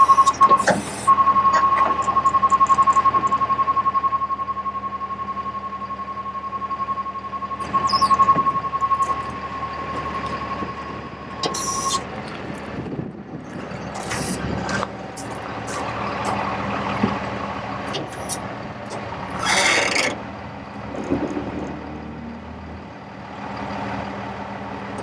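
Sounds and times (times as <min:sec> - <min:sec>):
rapid high warning beeps: 0:00.0 - 0:12.1, 0:17.5 - 0:18.4
truck diesel engine running: 0:00.0 - 0:25.0
clunks: 0:17.8 - 0:19.5.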